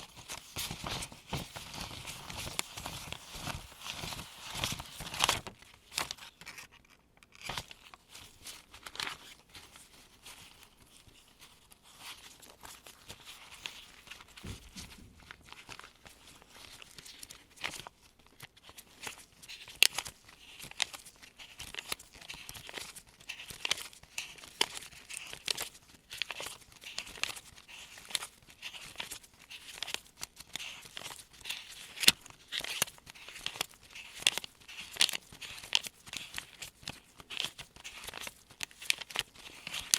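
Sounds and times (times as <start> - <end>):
paper bills snapping: 18.8 - 39.9.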